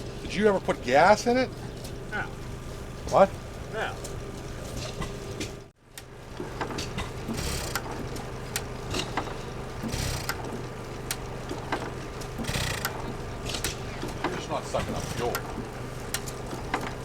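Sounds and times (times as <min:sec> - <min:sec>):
engine turning over without firing: 0:00.0 - 0:17.0
steady hum: 0:00.0 - 0:17.0
small clicks: 0:05.4 - 0:17.0.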